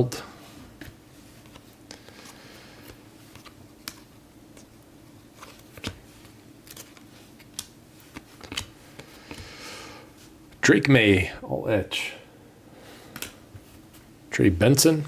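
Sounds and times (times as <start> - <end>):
faint steady hum: 0.0 - 15.0
trading cards flipped by hand: 0.8 - 9.5, 13.1 - 14.1.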